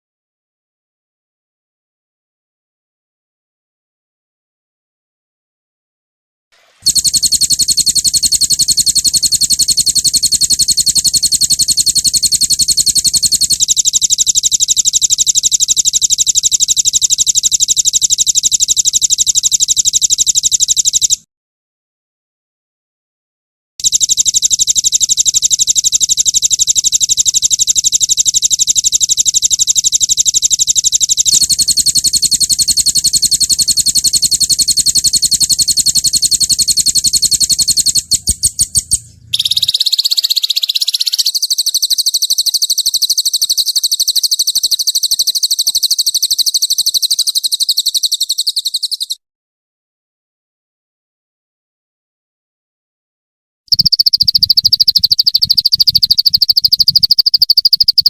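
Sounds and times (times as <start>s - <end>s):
songbird trills: 32.6s - 49.2s.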